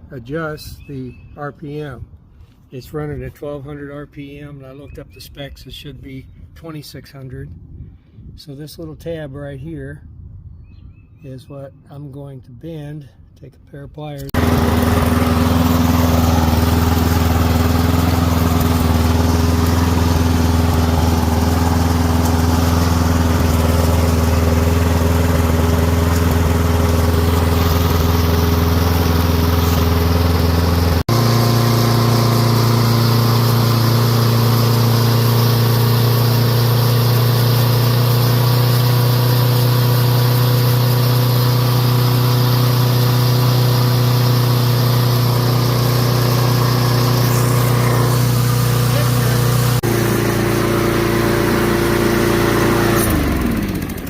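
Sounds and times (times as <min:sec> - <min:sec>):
lawn mower engine running: 0:14.3 - 0:54.0.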